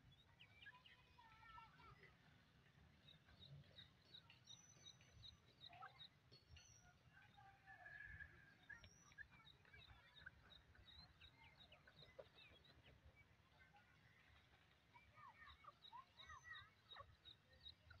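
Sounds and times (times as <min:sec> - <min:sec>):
faint bird chirps: 0:00.0 - 0:02.3, 0:02.9 - 0:18.0.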